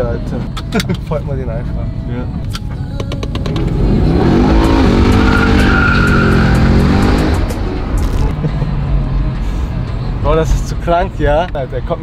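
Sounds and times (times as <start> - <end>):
car engine accelerating: 3.2 - 9.2.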